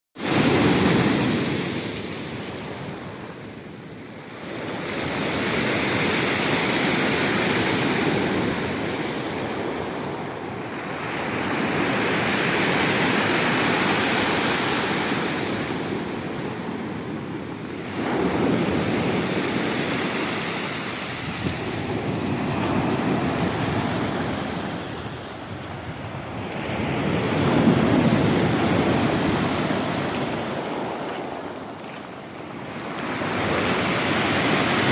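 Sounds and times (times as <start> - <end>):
sea waves breaking on shore: 0.2 - 34.9
wind noise on microphone: 4.4 - 31.8.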